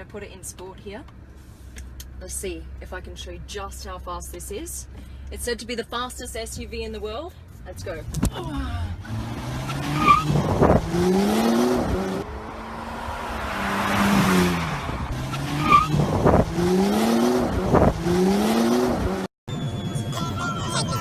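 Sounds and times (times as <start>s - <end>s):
car engine accelerating hard: 8.6s - 19.3s.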